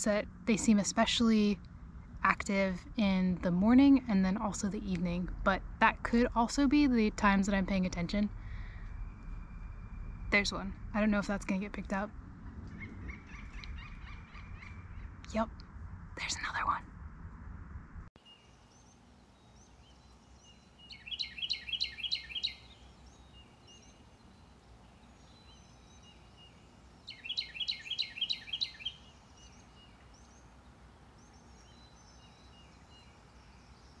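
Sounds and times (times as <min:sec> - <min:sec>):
bird singing sweeping notes: 0:12.6 - 0:15.5, 0:18.2 - 0:34.0
faint bird chirps: 0:18.2 - 0:34.0.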